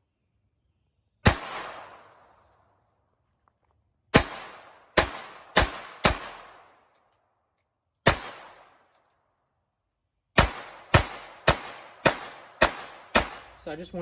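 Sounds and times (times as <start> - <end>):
pistol shots with echo: 1.2 - 2.3, 4.1 - 6.9, 8.0 - 8.9, 10.4 - 13.6.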